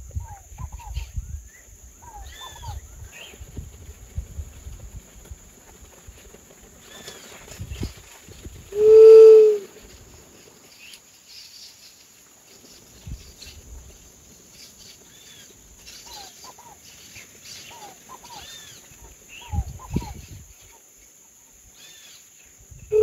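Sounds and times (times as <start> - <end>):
small birds chirping: 0.1 - 3.8, 9.8 - 23.0
dove moaning call: 8.7 - 9.9.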